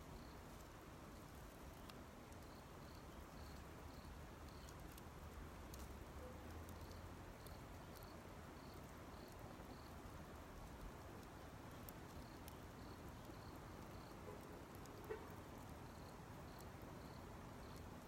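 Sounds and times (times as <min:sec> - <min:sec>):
campfire crackling faintly: 0:00.0 - 0:18.0
insect chirping: 0:00.1 - 0:00.4, 0:02.4 - 0:05.0, 0:06.2 - 0:10.0, 0:11.3 - 0:14.2, 0:15.7 - 0:17.9.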